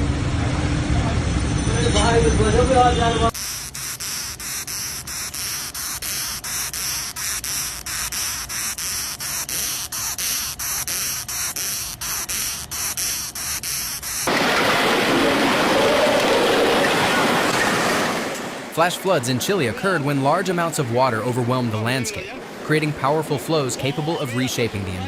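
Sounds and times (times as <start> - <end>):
rhythmic rasping hiss: 3.3 - 14.3.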